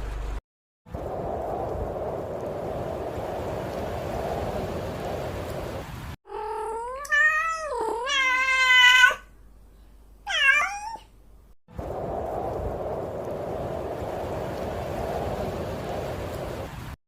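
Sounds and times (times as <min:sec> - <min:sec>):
cat meowing: 0:06.3 - 0:09.3, 0:10.2 - 0:11.1.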